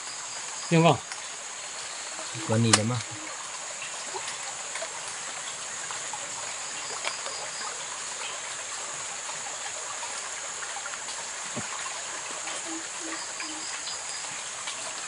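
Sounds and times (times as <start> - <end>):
flowing river water: 0.0 - 15.0
steady high hiss: 0.0 - 15.0.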